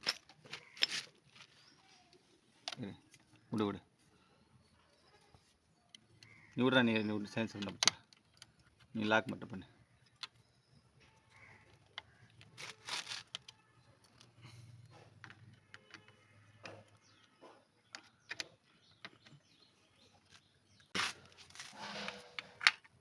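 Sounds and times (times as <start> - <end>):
short scraping: 21.0 - 22.7.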